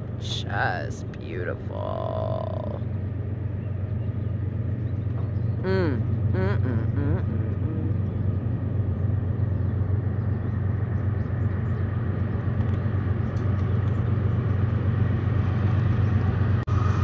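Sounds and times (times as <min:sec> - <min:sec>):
vehicle road and engine rumble: 0:00.0 - 0:17.0.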